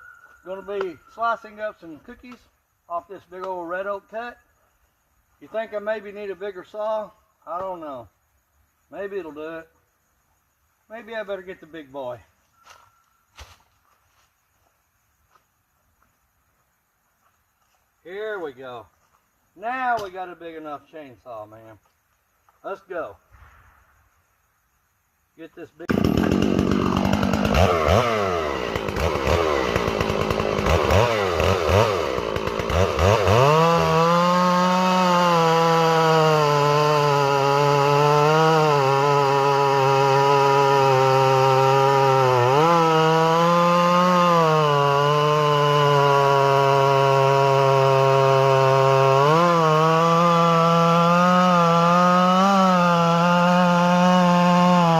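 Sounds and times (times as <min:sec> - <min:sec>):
chainsaw engine revving: 0:25.8 - 0:54.9.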